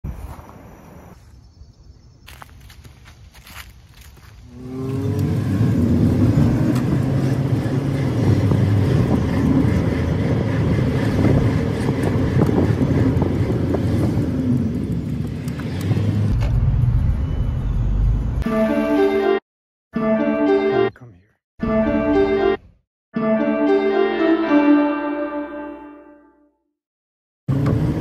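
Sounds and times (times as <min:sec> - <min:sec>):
car road noise rumble: 0:03.0 - 0:18.4, 0:27.5 - 0:28.0
music: 0:18.4 - 0:19.4, 0:20.0 - 0:21.0, 0:21.6 - 0:26.7.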